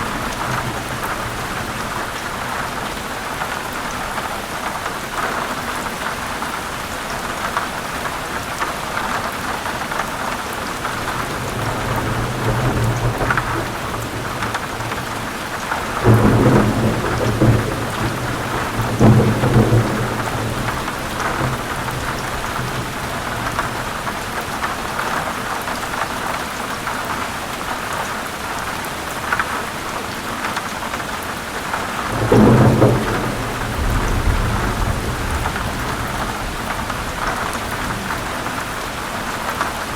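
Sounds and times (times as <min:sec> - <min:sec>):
thunder rumbling and clapping: 0:00.0 - 0:06.1, 0:09.7 - 0:25.3, 0:31.6 - 0:39.9
heavy rain: 0:00.0 - 0:39.9.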